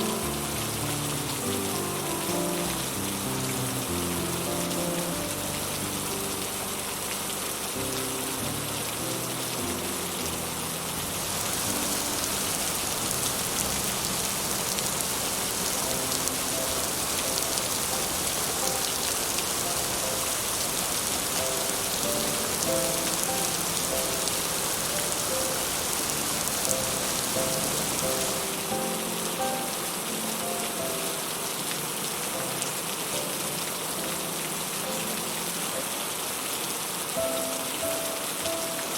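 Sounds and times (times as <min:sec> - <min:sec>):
soft sparse music notes: 0:00.0 - 0:36.2
heavy rain on a roof: 0:00.0 - 0:38.9.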